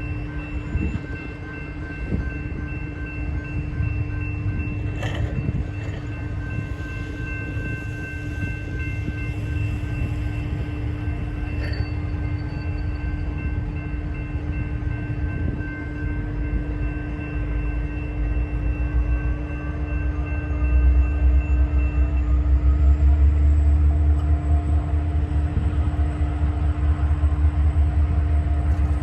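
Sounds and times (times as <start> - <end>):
diesel locomotive rumble: 0.0 - 29.0.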